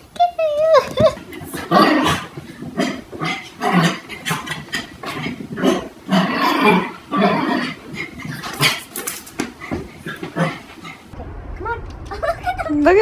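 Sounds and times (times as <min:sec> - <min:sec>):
dog making rough vocal sounds: 0:00.9 - 0:11.2.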